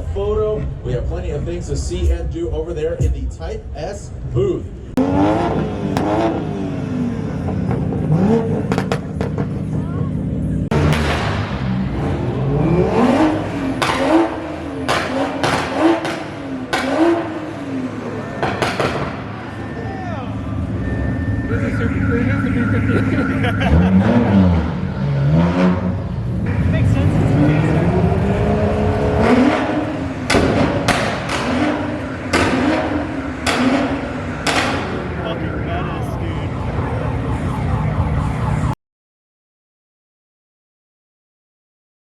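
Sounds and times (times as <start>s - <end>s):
car engine revving: 4.2s - 38.5s
sharp cracks: 13.8s - 17.2s, 18.4s - 19.4s, 30.2s - 32.8s, 33.4s - 35.0s.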